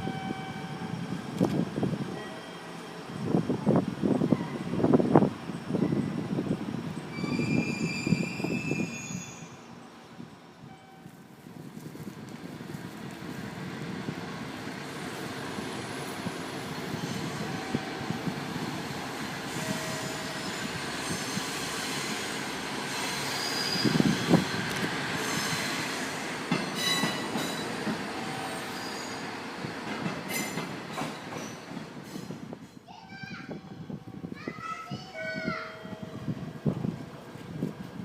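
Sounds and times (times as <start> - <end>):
diesel railcar engines running: 0.0 - 32.9, 33.5 - 38.0
train wheel squeal: 7.1 - 9.9, 19.4 - 24.6, 25.2 - 29.3.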